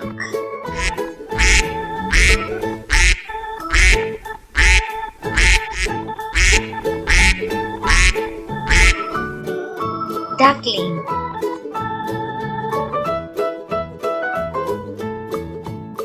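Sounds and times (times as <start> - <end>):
background music with steady beat: 0.0 - 16.0
duck quacking: 0.7 - 9.4.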